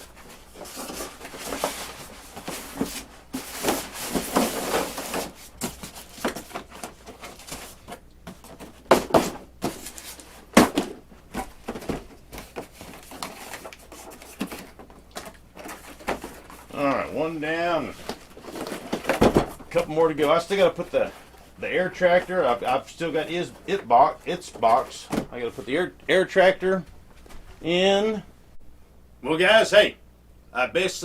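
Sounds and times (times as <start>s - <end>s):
foam scraping and rustling: 0.0s - 14.8s.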